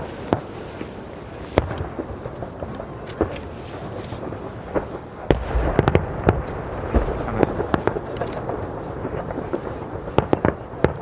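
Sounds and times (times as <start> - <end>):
fireworks bangs and cracks: 0.0 - 11.0
low rumble: 4.8 - 10.4.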